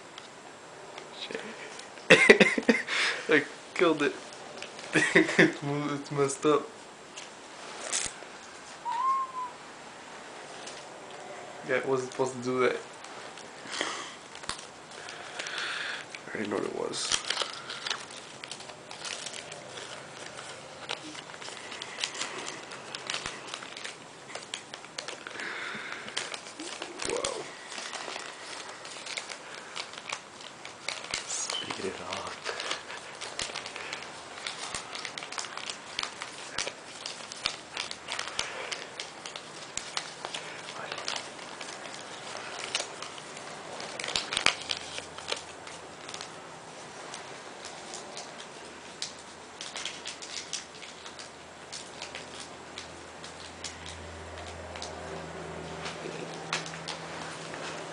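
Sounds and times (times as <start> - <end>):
paper crinkling: 1.2 - 9.5, 10.4 - 57.9
paper rustle: 11.7 - 57.9.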